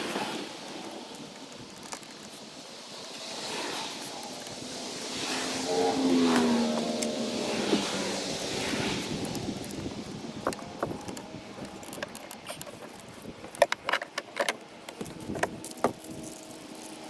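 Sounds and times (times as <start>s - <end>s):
small handling clicks and clinks: 9.2s - 17.0s.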